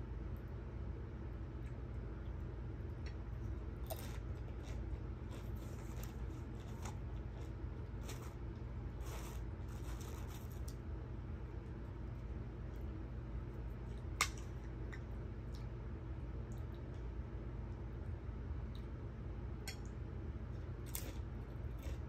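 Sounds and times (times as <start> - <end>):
steady low hum: 0.0 - 22.0
tortilla chips crunching: 3.8 - 10.8, 20.8 - 22.0.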